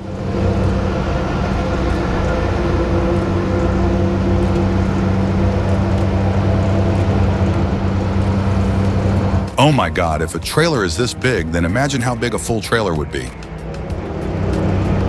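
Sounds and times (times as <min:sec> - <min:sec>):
truck engine humming: 0:00.0 - 0:15.0.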